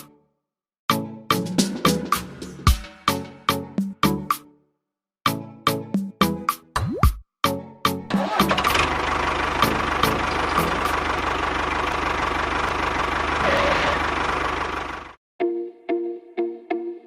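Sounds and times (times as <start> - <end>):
engine chugging: 8.2 - 15.2.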